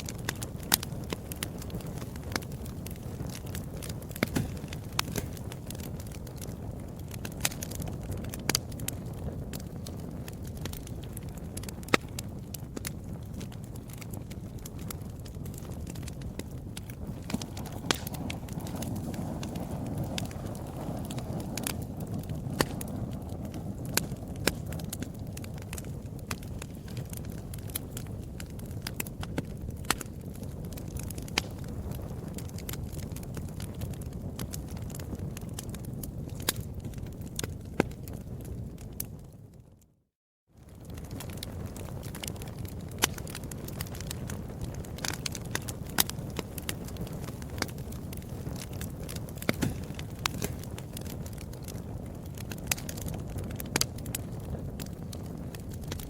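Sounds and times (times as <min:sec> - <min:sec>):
wood fire crackling: 0:00.0 - 0:39.9, 0:40.6 - 0:56.0
low rumble of flames: 0:00.0 - 0:56.0.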